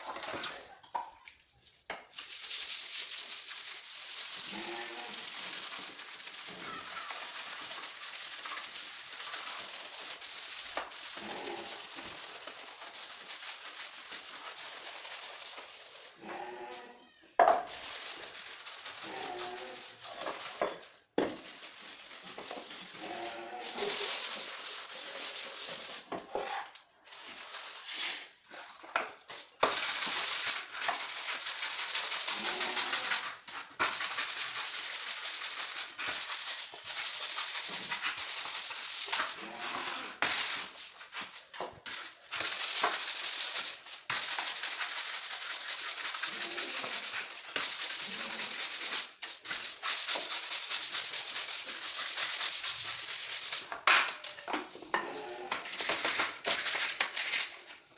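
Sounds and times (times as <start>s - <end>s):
loofah being scraped by hand: 22.2s - 26.7s, 30.4s - 40.6s.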